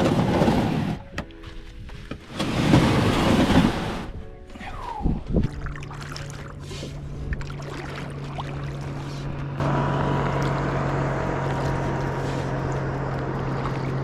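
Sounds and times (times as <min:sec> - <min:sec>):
boat motor humming: 0:00.0 - 0:14.0
wind: 0:00.0 - 0:14.0
water: 0:03.4 - 0:14.0.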